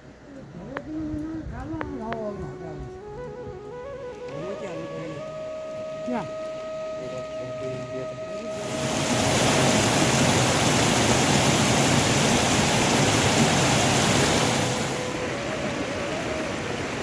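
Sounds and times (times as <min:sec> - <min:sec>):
heavy rain pouring: 0:08.5 - 0:17.0.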